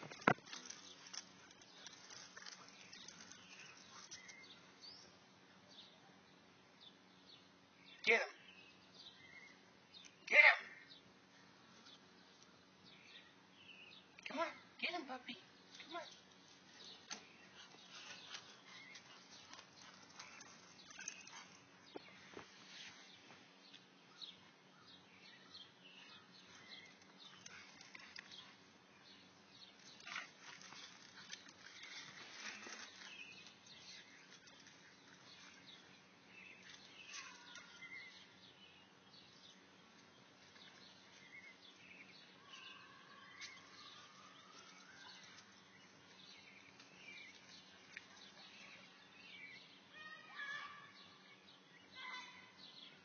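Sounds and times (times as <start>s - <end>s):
bird chirps and gliding calls: 15.6s - 53.0s.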